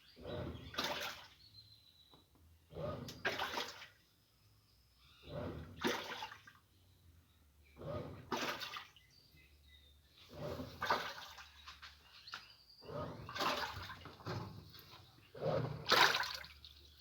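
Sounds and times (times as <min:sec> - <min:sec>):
water sloshing in washing machine: 0:00.3 - 0:01.4, 0:02.8 - 0:04.0, 0:05.3 - 0:06.6, 0:07.8 - 0:09.0, 0:10.3 - 0:17.0.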